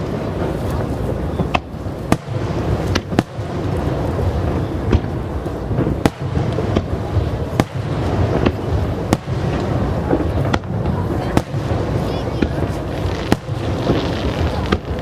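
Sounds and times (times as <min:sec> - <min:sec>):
fireworks bangs: 0:00.0 - 0:15.0
fireworks rumble and crackle: 0:00.0 - 0:15.0.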